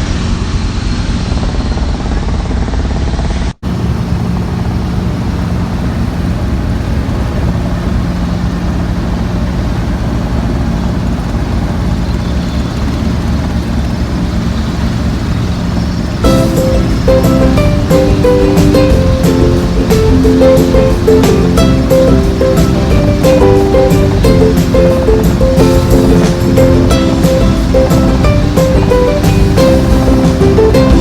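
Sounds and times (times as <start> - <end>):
helicopter engine and rotor: 0.2 - 31.0
music: 16.2 - 31.0.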